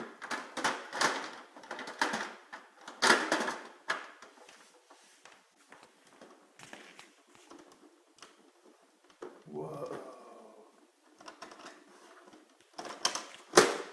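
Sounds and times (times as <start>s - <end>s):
plastic toys clicking and clacking: 0.0s - 4.5s, 6.1s - 9.4s, 11.0s - 13.9s.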